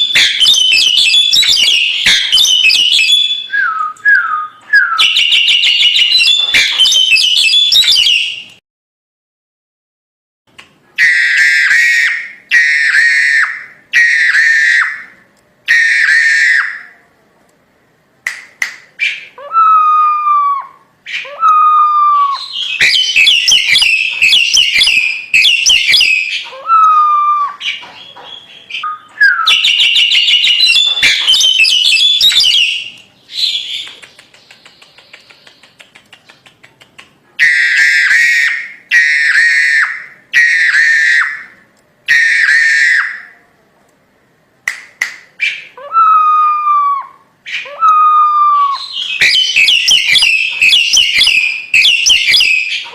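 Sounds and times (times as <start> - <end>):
bird singing chattering song: 0.0 - 8.6, 21.1 - 37.1, 48.8 - 52.9.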